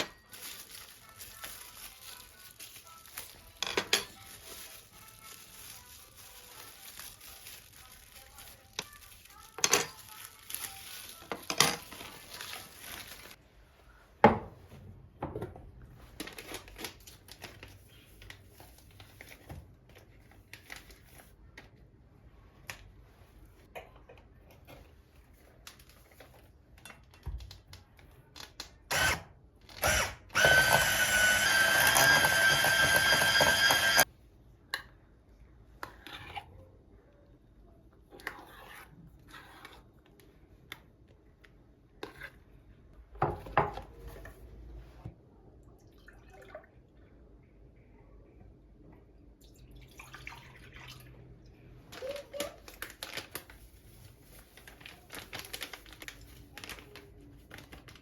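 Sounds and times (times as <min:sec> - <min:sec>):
kitchen appliance motor running: 0:29.8 - 0:34.0.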